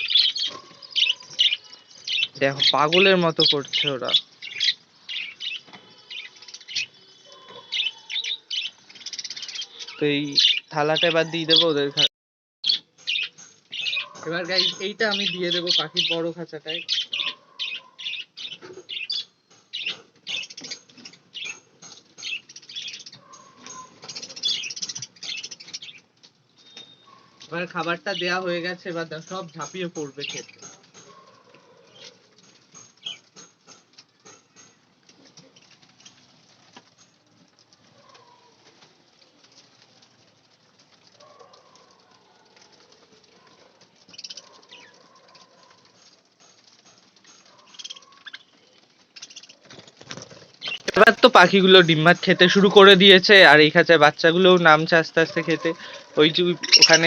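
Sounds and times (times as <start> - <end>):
budgerigars chattering and chirping: 0.0 - 26.1, 27.0 - 34.8, 44.1 - 49.6, 55.2 - 57.0
faint background birds: 0.0 - 57.0.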